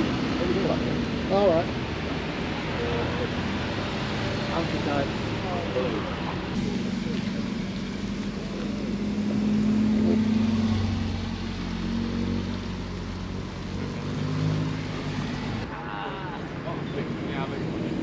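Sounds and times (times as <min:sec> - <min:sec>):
car engine running at low revs: 0:00.0 - 0:15.7.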